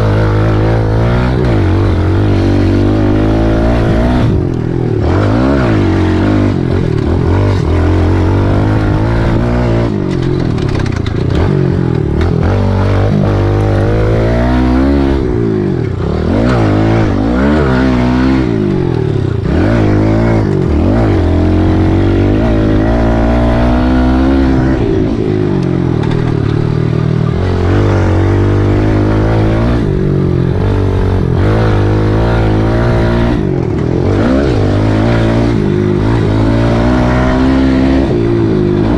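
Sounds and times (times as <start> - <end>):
small motorcycle engine revving: 0.0 - 38.9.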